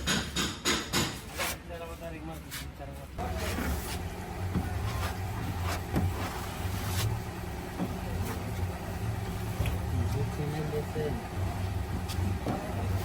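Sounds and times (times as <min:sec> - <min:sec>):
motor humming: 0:03.2 - 0:13.0.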